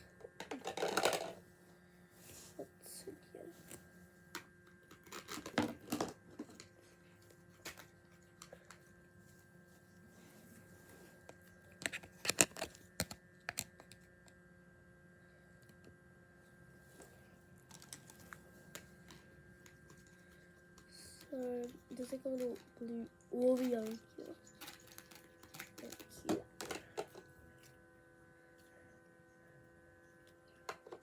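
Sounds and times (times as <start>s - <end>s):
plastic container clicks and crackles: 11.8s - 14.0s, 23.4s - 27.3s.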